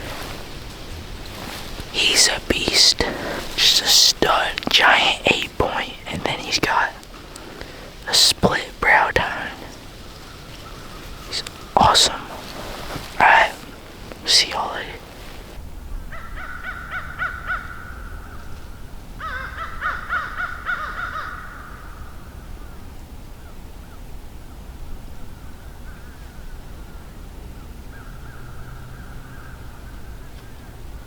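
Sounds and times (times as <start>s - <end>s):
birds calling harshly: 1.3s - 15.6s.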